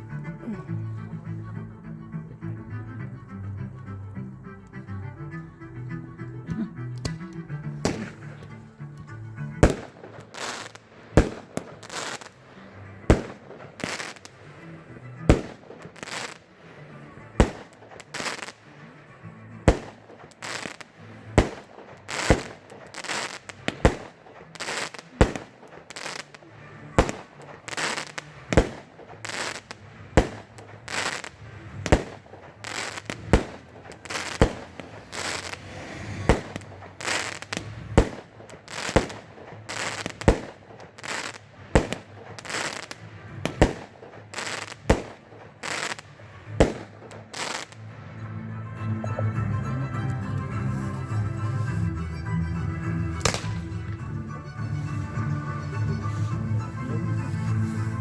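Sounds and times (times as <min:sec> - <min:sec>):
firework shells bursting: 0:06.9 - 0:16.8, 0:17.4 - 0:18.9, 0:19.7 - 0:47.9, 0:53.2 - 0:54.0
firework crackle: 0:06.9 - 0:48.0, 0:53.2 - 0:54.0, 0:54.6 - 0:56.4.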